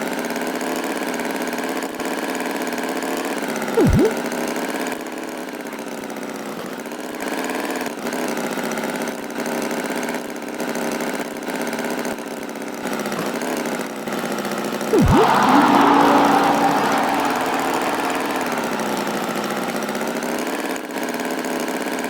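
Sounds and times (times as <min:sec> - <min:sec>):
cartoon tractor engine pulsing: 0:03.8 - 0:04.2, 0:15.0 - 0:19.8
swooping sound: 0:03.8 - 0:04.2, 0:15.0 - 0:19.8
loud burst: 0:15.0 - 0:19.9.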